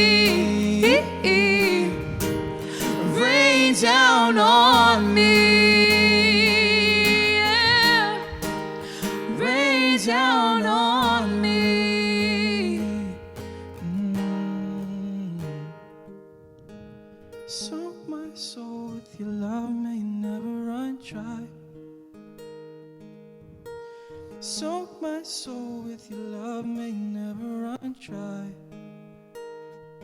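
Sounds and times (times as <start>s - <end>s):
person singing: 0.0s - 15.7s, 17.5s - 21.6s
acoustic guitar: 0.0s - 30.0s.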